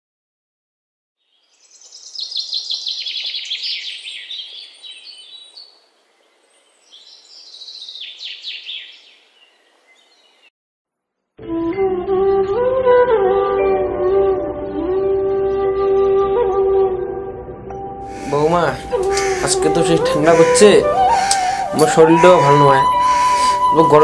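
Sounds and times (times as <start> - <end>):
birds chirping: 1.3 - 10.5, 18.1 - 24.0.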